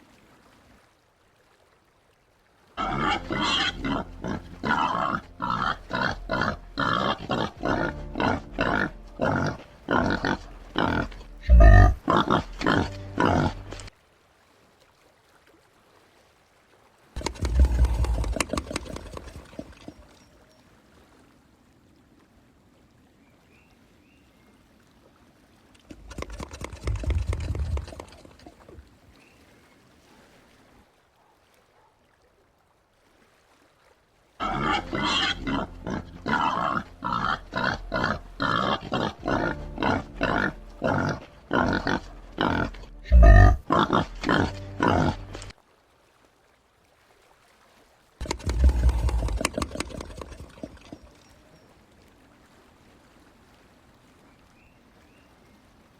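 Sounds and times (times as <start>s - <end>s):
peccary grunting: 2.8s - 13.9s, 34.4s - 45.5s.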